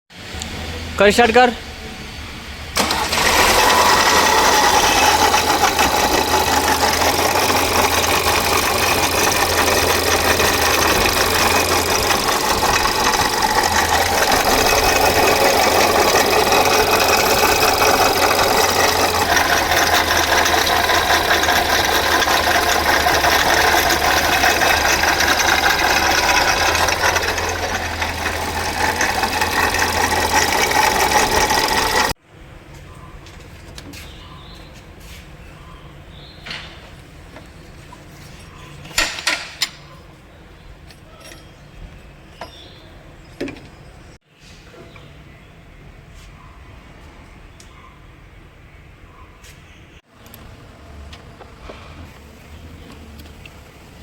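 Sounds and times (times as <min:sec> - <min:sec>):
car engine running: 0:00.3 - 0:32.2, 0:50.2 - 0:54.0.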